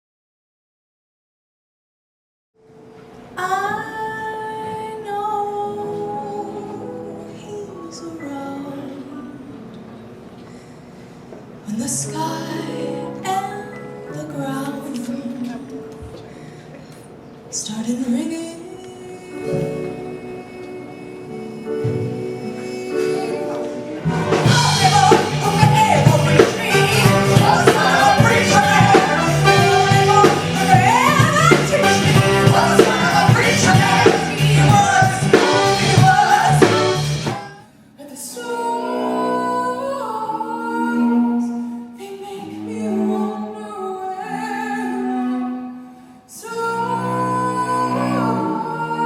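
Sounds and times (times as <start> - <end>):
woman singing: 3.4 - 9.6, 11.6 - 16.0, 17.5 - 49.0
band accompaniment: 21.6 - 37.7.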